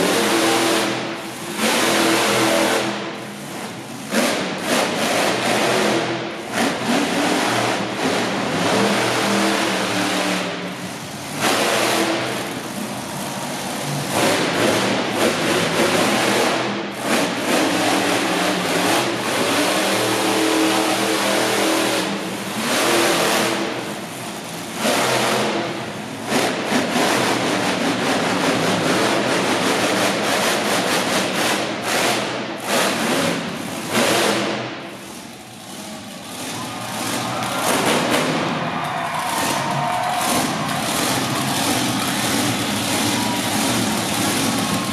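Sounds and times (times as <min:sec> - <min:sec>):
monster truck engine revving: 0:00.0 - 0:44.9.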